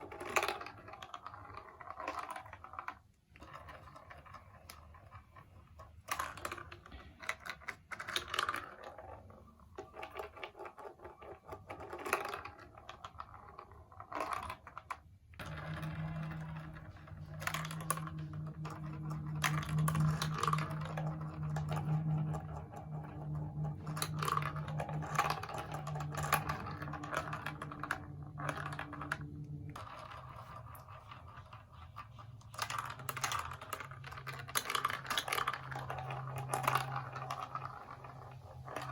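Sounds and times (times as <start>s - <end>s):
plastic pieces clicking and rattling: 9.8s - 30.2s, 32.5s - 38.9s
steady low hum: 15.4s - 38.9s.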